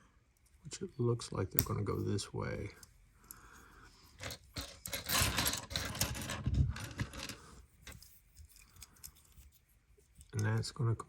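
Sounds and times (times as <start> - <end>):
plastic parts rattling and scraping: 4.1 - 9.6.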